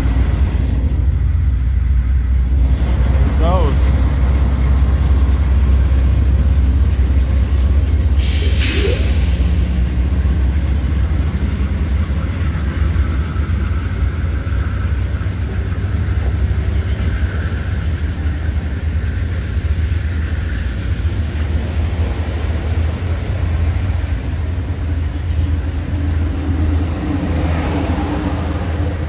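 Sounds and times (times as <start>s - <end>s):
train rumbling past: 0.0s - 29.0s.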